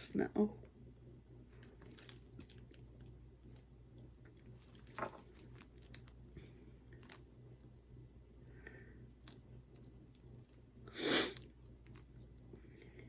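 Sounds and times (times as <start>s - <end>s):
low steady hum: 0.0s - 13.0s
small clicks and rustles of hands: 1.5s - 7.7s, 8.6s - 10.7s, 11.3s - 13.0s.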